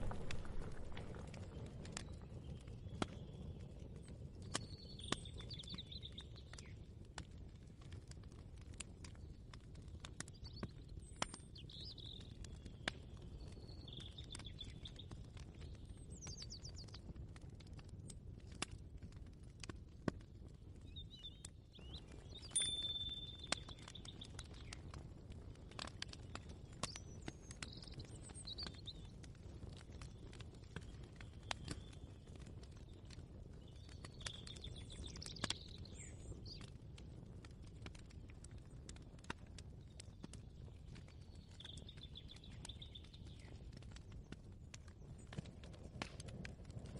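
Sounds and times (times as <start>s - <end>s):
steady low rumble: 0.0s - 2.0s
bird chirps: 21.0s - 24.7s
bird-like chirping calls: 22.6s - 23.7s.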